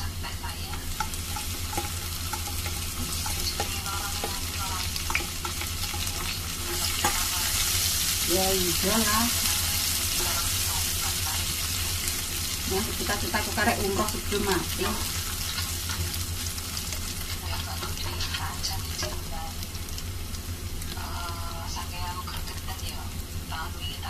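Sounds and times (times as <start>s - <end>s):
food sizzling in hot oil: 0.0s - 24.0s
spatula tapping and scraping pan: 0.7s - 7.7s, 17.8s - 19.3s.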